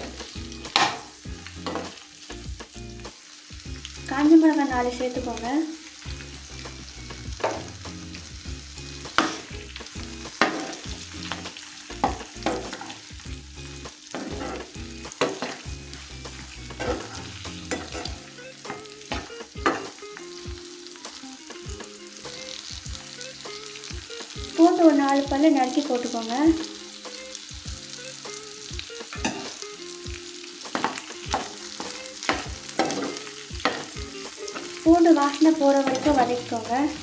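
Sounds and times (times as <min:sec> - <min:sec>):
spatula scraping a pan: 0:00.0 - 0:02.0, 0:09.0 - 0:13.1, 0:14.1 - 0:20.0, 0:30.7 - 0:35.0
onions sizzling in hot oil: 0:00.0 - 0:37.0.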